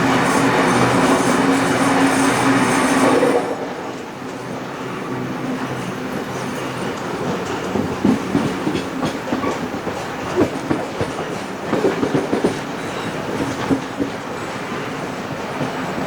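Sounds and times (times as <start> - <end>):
railway carriage rumbling: 0.0 - 16.0
wheels clicking over rail joints: 5.4 - 16.0.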